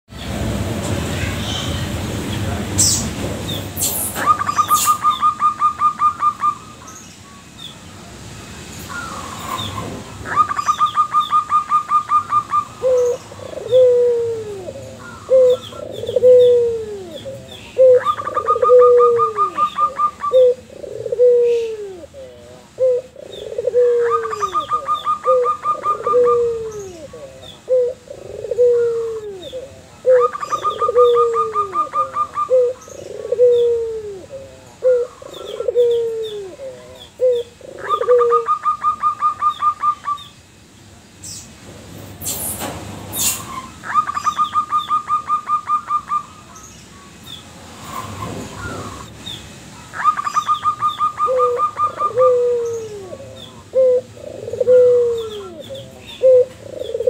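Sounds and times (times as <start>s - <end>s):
dove trilling: 3.8s - 7.0s, 8.9s - 40.3s, 43.2s - 47.1s, 49.7s - 57.0s
dove cooing: 10.2s - 40.2s, 49.9s - 57.0s.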